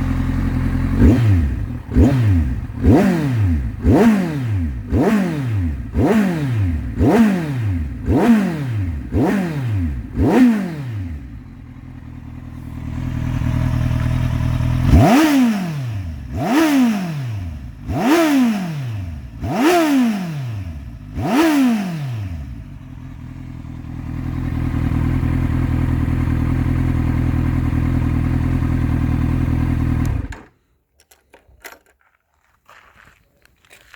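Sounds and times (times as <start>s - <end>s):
motorcycle engine idling: 0.0s - 16.5s, 17.1s - 18.0s, 20.6s - 21.3s, 21.9s - 30.5s
motorcycle engine revving: 0.0s - 30.5s.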